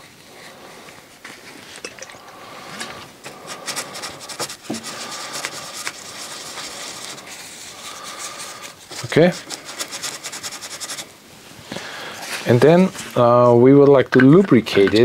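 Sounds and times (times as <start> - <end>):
scratchy rubbing by hand: 2.5 - 11.2.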